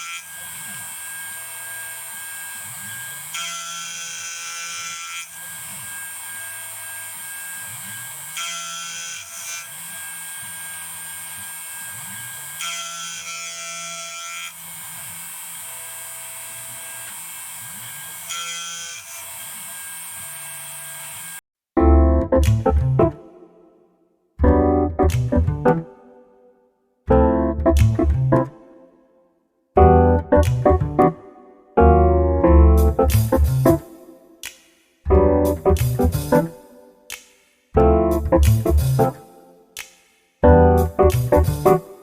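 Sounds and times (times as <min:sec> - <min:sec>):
small motor whining: 0:00.0 - 0:21.4.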